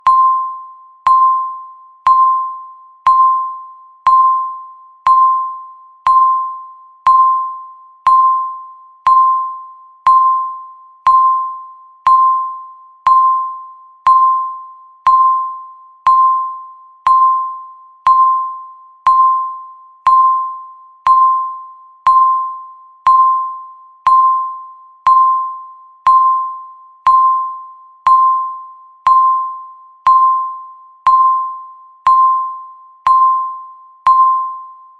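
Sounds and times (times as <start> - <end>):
timer tick ping: 0.0 - 34.9.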